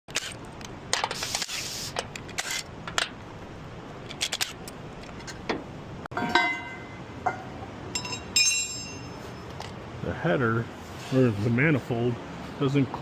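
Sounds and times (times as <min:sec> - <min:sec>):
metal tools clicking and knocking: 0:06.2 - 0:09.7.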